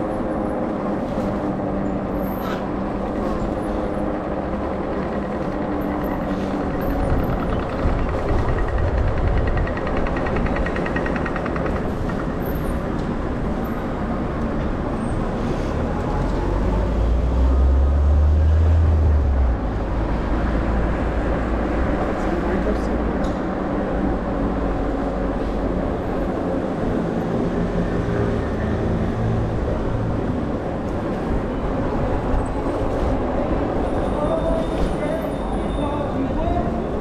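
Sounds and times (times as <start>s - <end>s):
street noise: 0.0s - 37.0s
wind rushing over microphone: 6.5s - 10.8s.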